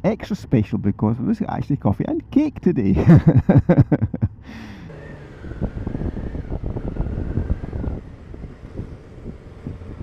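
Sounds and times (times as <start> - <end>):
motorcycle engine running: 4.9 - 10.0
wind buffeting microphone: 4.9 - 10.0.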